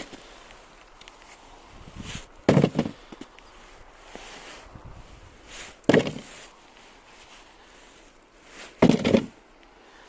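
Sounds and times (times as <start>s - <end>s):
faint rustling: 0.0s - 10.0s
wooden log dropped on sled: 2.4s - 3.2s, 5.8s - 6.4s, 8.8s - 9.4s.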